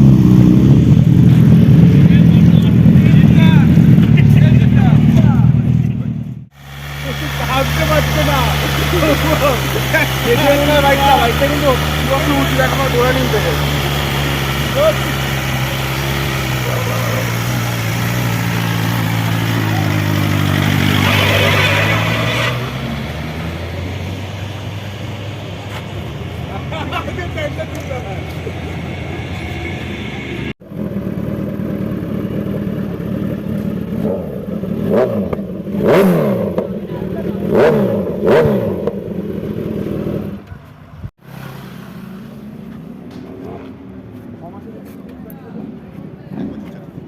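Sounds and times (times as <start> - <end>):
motorcycle engine idling: 0.0 - 20.8, 24.8 - 35.8
loud rushing noise: 6.4 - 25.3.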